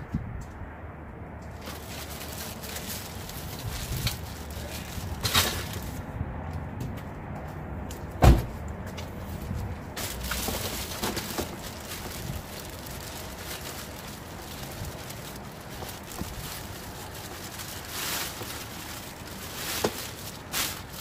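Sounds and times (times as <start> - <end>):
heavy thump: 8.2 - 8.6.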